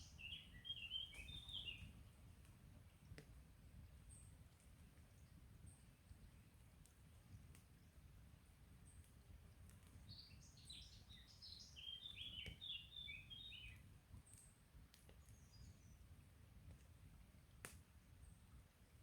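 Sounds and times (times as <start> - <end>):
songbird singing: 0.0 - 1.9, 10.1 - 13.8
campfire crackles: 1.1 - 10.1, 13.6 - 15.5, 16.4 - 18.3.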